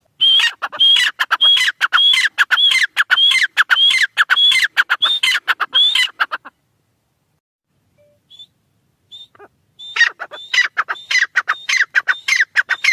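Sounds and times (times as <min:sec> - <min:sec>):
partridge calling: 0:00.2 - 0:06.6, 0:09.1 - 0:12.9.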